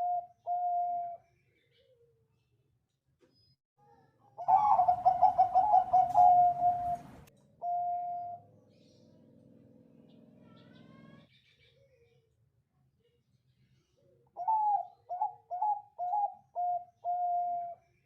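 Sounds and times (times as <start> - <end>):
dove cooing: 0.0 - 1.2, 4.4 - 8.6, 14.4 - 17.8.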